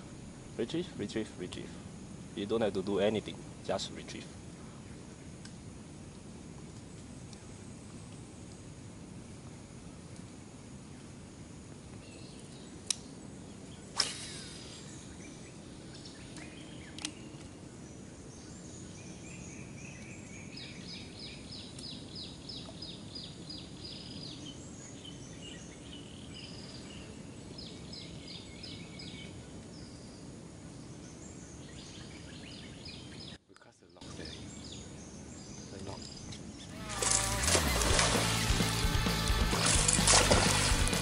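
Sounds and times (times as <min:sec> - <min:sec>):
outdoor background hum: 0:00.0 - 0:41.0
birds calling high notes: 0:36.6 - 0:41.0.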